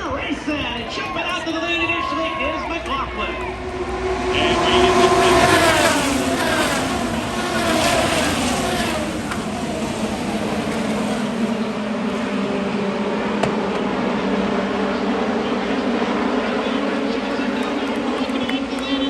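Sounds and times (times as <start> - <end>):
racing cars passing at full throttle: 0.0 - 19.0.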